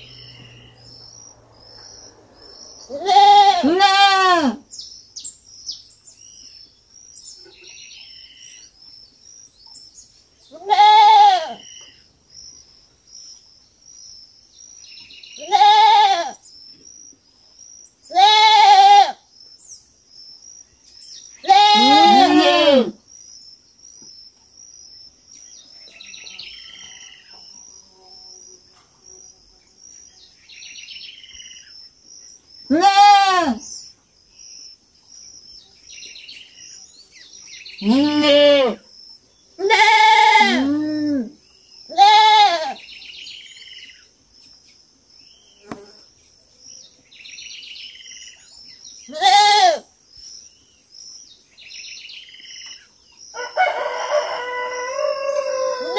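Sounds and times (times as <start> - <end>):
young goat bleating: 2.9 - 4.6, 10.5 - 11.6, 15.4 - 16.4, 18.1 - 19.2, 21.4 - 23.0, 32.7 - 33.6, 37.8 - 38.8, 39.6 - 41.2, 41.9 - 42.8, 49.1 - 49.9.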